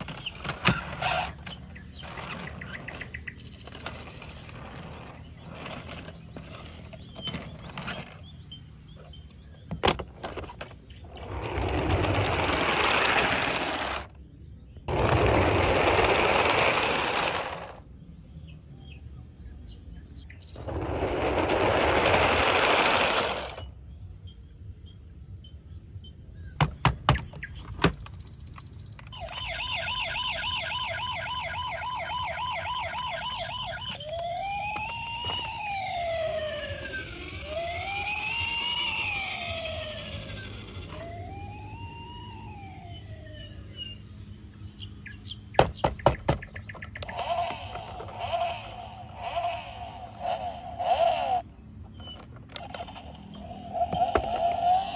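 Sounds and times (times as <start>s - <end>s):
toy siren warbling: 29.1s - 44.0s, 47.0s - 51.4s, 52.0s - 54.9s.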